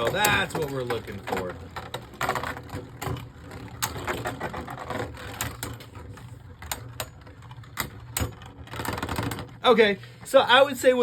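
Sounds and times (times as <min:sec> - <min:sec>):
spinning top humming: 0:00.0 - 0:11.0.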